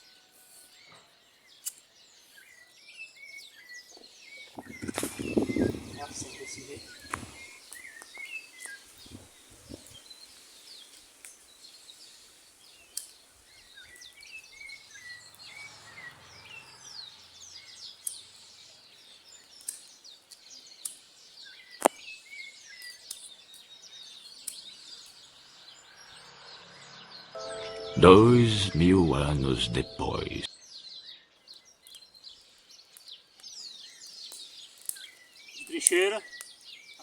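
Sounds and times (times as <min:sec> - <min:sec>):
birds chirping: 0:01.3 - 0:37.0
faint outdoor hiss: 0:01.4 - 0:25.8, 0:32.0 - 0:37.0.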